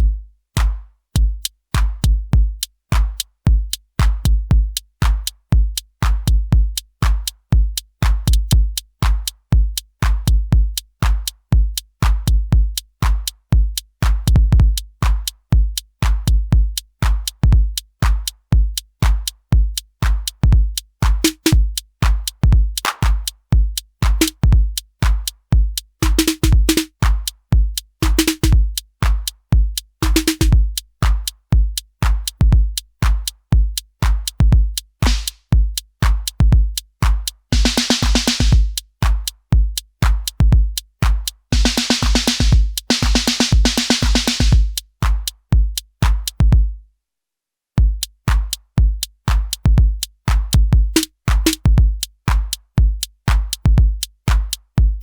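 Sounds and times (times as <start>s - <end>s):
deep kick drum: 0.0s - 46.8s, 47.8s - 55.0s
ticking hi-hats: 0.0s - 46.8s, 47.8s - 55.0s
snare or clap hits: 0.6s - 0.9s, 1.8s - 2.0s, 2.9s - 3.2s, 21.0s - 23.4s, 26.0s - 27.3s, 28.0s - 29.3s, 30.0s - 31.3s, 35.0s - 36.3s, 37.0s - 39.4s, 41.0s - 45.4s, 46.0s - 46.4s, 48.3s - 48.6s, 49.3s - 49.7s, 50.3s - 51.7s, 52.3s - 52.6s, 53.3s - 53.7s, 54.3s - 54.6s.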